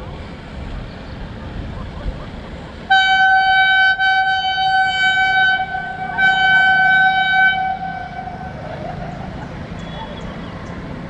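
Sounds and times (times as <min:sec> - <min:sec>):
train horn blast: 0:02.9 - 0:08.7.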